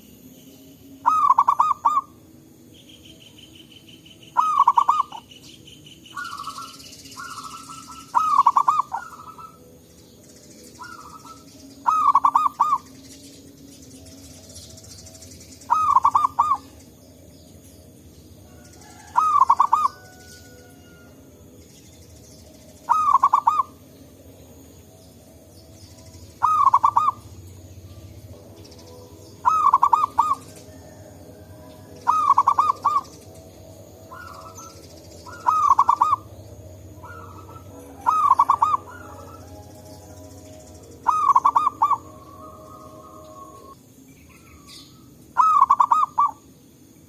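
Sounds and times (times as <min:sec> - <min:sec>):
faint high chirping: 0:00.0 - 0:47.0
dove cooing: 0:01.0 - 0:02.2, 0:04.4 - 0:05.3, 0:06.1 - 0:09.8, 0:10.8 - 0:13.0, 0:15.6 - 0:16.9, 0:18.5 - 0:21.2, 0:22.8 - 0:23.9, 0:26.4 - 0:28.0, 0:29.4 - 0:33.4, 0:34.1 - 0:43.8, 0:44.4 - 0:46.4.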